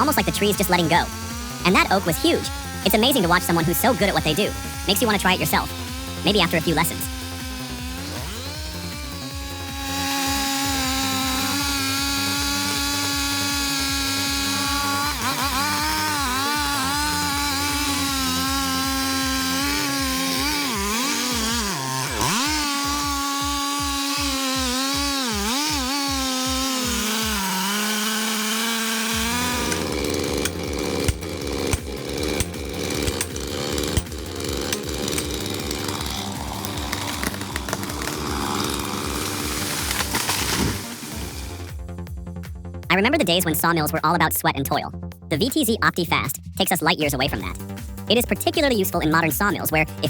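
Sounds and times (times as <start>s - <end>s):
chainsaw cutting wood: 0.0s - 42.2s, 46.9s - 50.0s.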